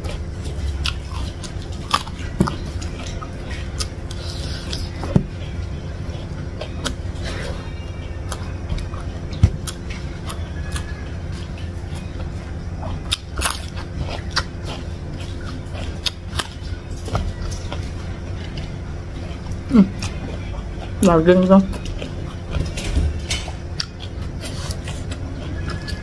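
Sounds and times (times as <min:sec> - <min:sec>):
steady low hum: 0:00.0 - 0:26.0
wet chewing with mouth clicks: 0:00.0 - 0:26.0.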